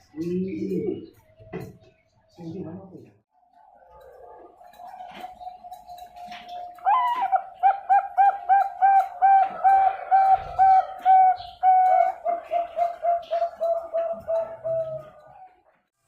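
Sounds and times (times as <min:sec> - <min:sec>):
dove cooing: 0:03.6 - 0:15.7.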